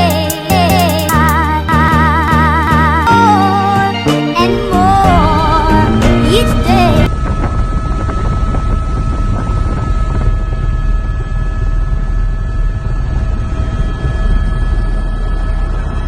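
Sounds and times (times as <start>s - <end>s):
high whine: 0.0s - 16.0s
helicopter engine and rotor: 7.0s - 16.0s.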